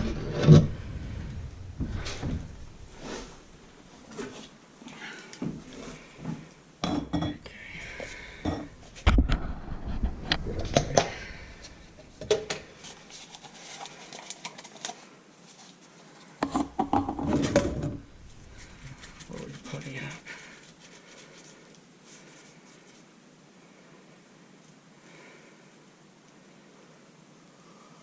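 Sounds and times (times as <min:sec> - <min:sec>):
heavy thump: 0:00.0 - 0:03.5, 0:08.5 - 0:12.3.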